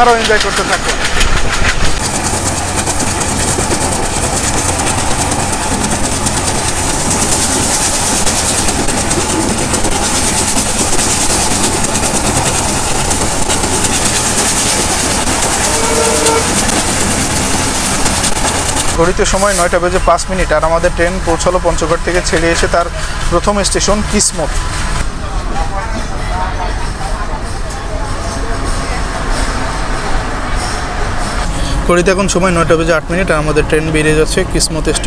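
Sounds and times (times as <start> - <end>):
wheels clattering on rail joints: 0.0 - 20.1
diesel train rumbling: 0.0 - 35.0.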